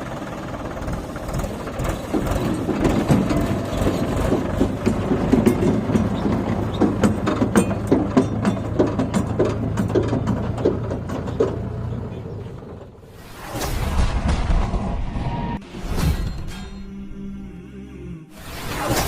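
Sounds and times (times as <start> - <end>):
tractor engine running: 0.0 - 13.1
trolley rattling and clanking: 0.1 - 13.0.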